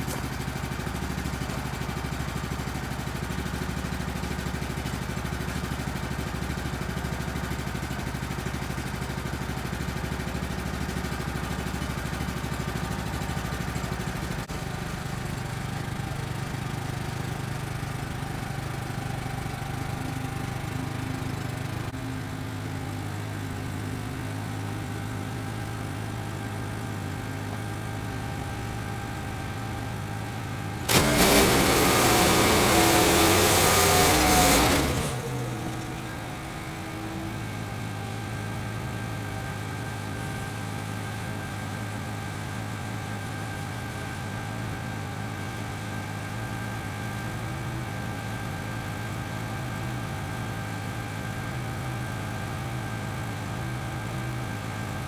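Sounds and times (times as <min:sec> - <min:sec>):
gas engine idling: 0:24.2 - 0:41.4.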